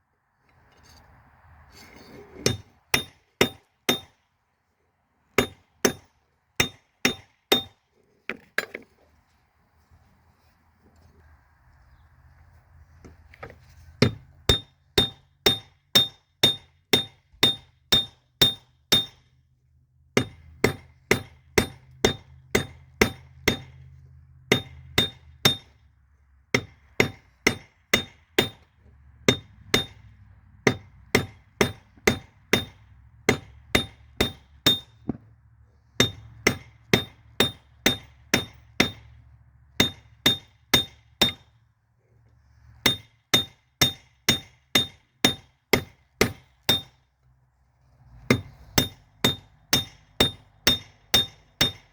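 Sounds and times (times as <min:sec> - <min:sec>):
hammer ringing on anvil: 0:14.5 - 0:19.2, 0:30.7 - 0:34.9, 0:39.8 - 0:41.5, 0:42.9 - 0:46.9, 0:48.3 - 0:51.8.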